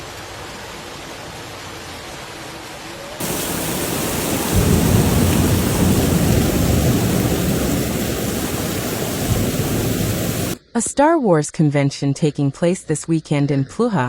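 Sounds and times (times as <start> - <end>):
heavy rain: 0.0 - 10.6
deep thunder rumble: 3.2 - 10.6.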